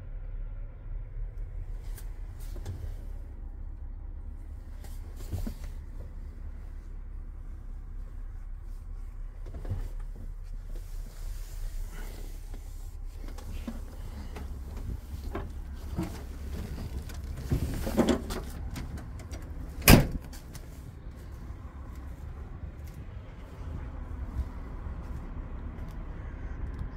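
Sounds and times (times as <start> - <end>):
low steady rumble: 0.0 - 26.9
metal clunks and knocks: 13.6 - 20.6.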